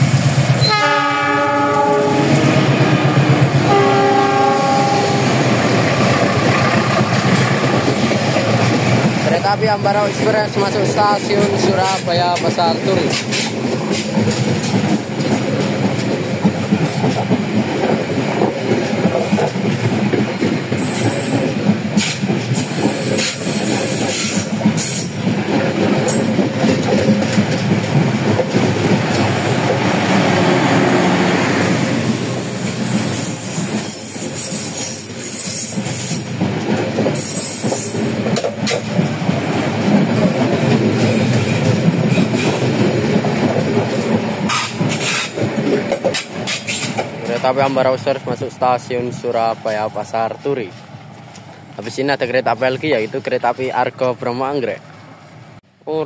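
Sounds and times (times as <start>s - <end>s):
train coaches rolling past: 0.0s - 55.8s
wheels clattering over rail joints: 31.9s - 48.5s.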